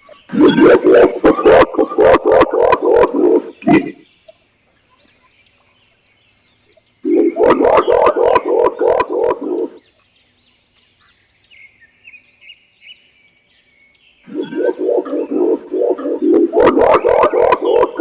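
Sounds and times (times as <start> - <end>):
faint high bird chirps: 0.0 - 18.0
pigeon deep pulsing hoots: 0.3 - 4.0, 7.0 - 9.8, 14.3 - 18.0.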